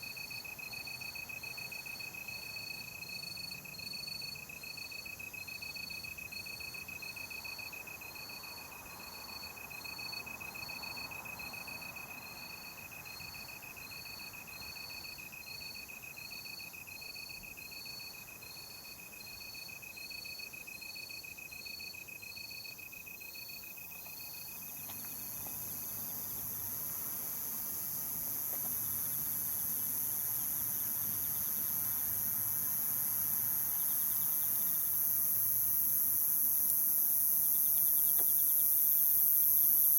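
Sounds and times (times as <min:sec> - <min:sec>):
insect chirping evenly: 0:00.0 - 0:39.9.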